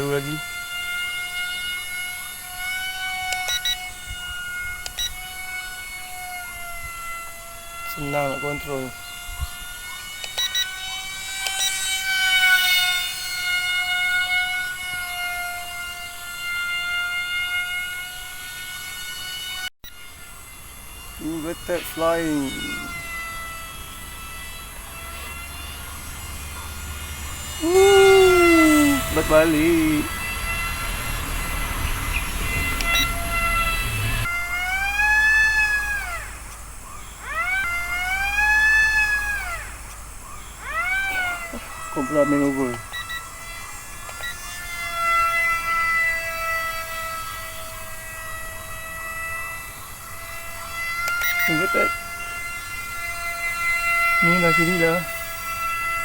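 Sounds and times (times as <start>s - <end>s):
model jet motor whine: 0.0s - 56.0s
short clicks: 3.3s - 4.2s, 4.8s - 5.2s, 10.2s - 10.7s, 32.6s - 33.1s, 51.0s - 51.6s.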